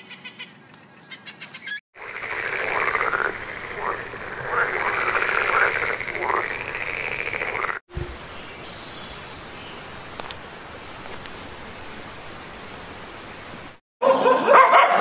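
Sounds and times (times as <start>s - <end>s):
tree frog rattling croak: 2.0s - 7.8s.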